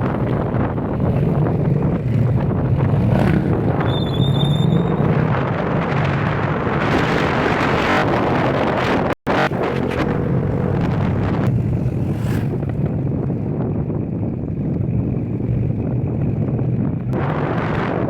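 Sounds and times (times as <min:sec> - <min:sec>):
vehicle engine and road noise: 0:00.0 - 0:18.0
wind buffeting microphone: 0:00.0 - 0:18.0
short high squeal: 0:03.8 - 0:05.0.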